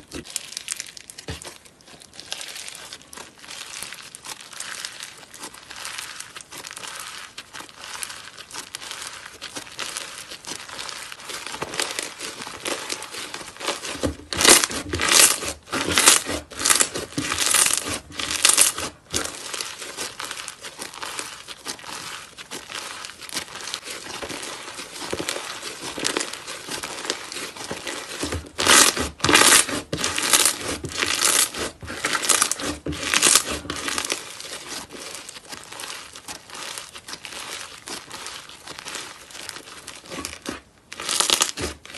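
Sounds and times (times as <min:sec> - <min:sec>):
slime squishing by hand: 0:00.0 - 0:41.9.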